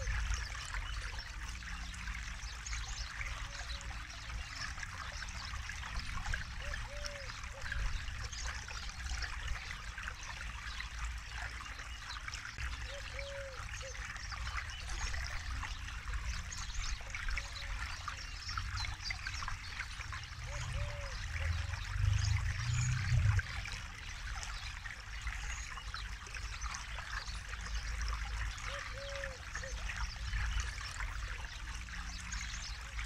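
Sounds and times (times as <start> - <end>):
river water babbling over stones: 0.0 - 33.0
low rumble: 21.4 - 23.7.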